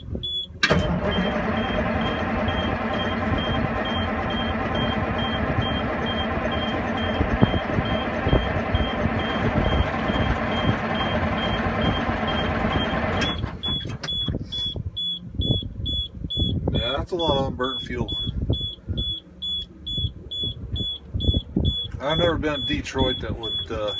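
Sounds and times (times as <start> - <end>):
diesel engine cranking on starter: 0.4 - 14.8
high warning beeps: 1.1 - 23.9.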